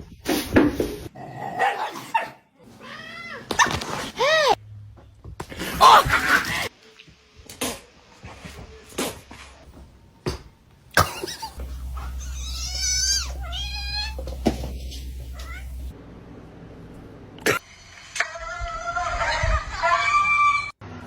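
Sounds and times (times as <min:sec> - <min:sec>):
cat meowing: 0:12.1 - 0:15.9.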